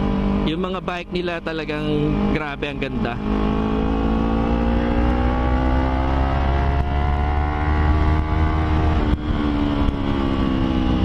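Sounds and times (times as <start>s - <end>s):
motorcycle engine accelerating: 0.0s - 11.0s
wind rumble on microphone: 3.1s - 11.0s.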